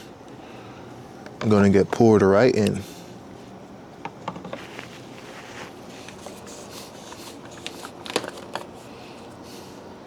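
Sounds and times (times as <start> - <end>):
plastic bottle crinkling and clicking: 4.0 - 8.8.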